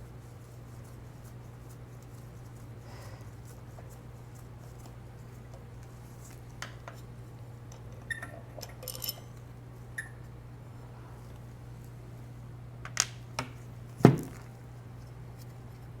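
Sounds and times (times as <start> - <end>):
metal and glass parts clinking: 8.6 - 9.3.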